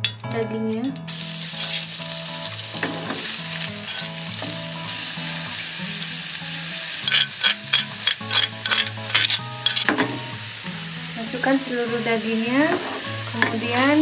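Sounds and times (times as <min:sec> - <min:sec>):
meat sizzling in hot oil: 0:01.0 - 0:14.0
spoon scraping stone mortar: 0:02.9 - 0:04.2, 0:07.0 - 0:10.0.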